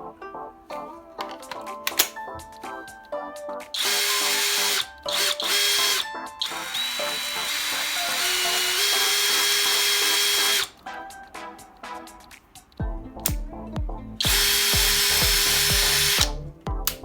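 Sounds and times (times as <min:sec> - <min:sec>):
drill motor whining: 0:03.8 - 0:10.8, 0:14.2 - 0:16.4.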